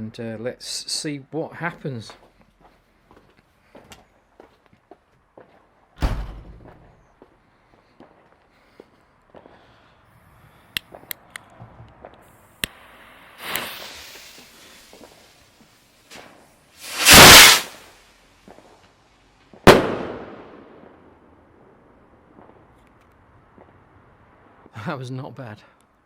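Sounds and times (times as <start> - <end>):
hissing fuse: 12.3 - 17.9
firework rocket whoosh: 12.6 - 18.0
firework bang: 12.8 - 15.2, 16.8 - 17.9, 19.6 - 21.2.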